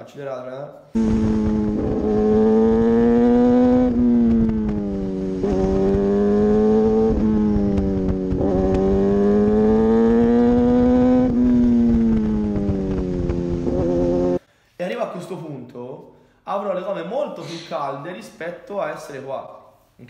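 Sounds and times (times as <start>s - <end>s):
motorcycle engine accelerating: 1.0s - 14.4s
wind rumble on microphone: 3.6s - 8.9s.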